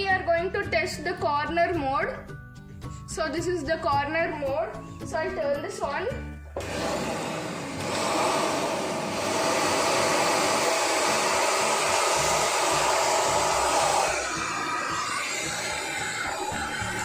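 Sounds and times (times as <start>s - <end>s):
vacuum cleaner running: 6.6s - 17.0s.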